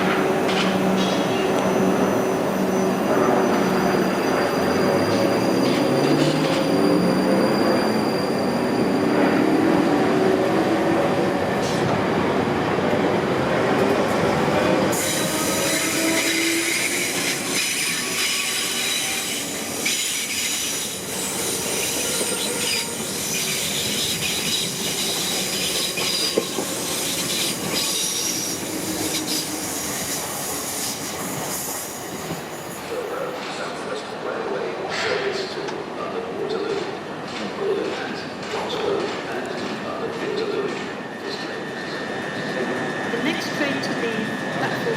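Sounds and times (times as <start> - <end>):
high-pitched wheel squeal: 1.7 - 10.3.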